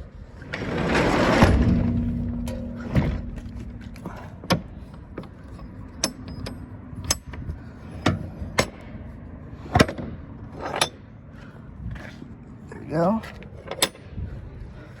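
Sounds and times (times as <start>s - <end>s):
truck cargo door knocks and clanks: 1.4s - 6.5s.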